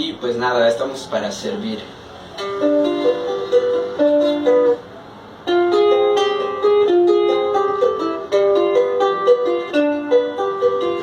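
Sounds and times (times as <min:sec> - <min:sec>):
small guitar strummed and plucked: 0:02.3 - 0:11.0.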